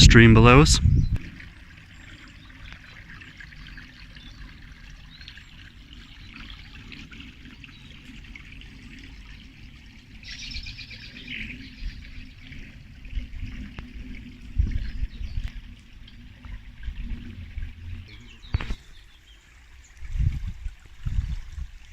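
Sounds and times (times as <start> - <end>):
low steady rumble: 0.0 - 21.9
songbirds chirping and singing: 0.5 - 12.9, 17.6 - 19.9.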